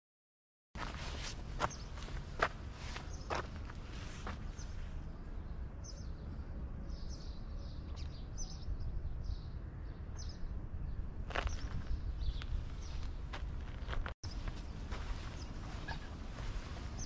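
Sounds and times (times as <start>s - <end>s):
small birds chirping: 0.8s - 17.0s
low outdoor rumble: 8.8s - 17.0s
footstep: 11.3s - 17.0s.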